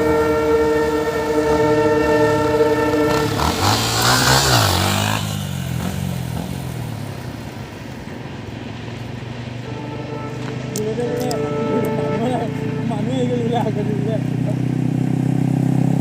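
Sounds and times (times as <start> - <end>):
horn holding a chord: 0.0 - 6.5, 9.6 - 14.7
motorcycle passing by: 0.0 - 16.0.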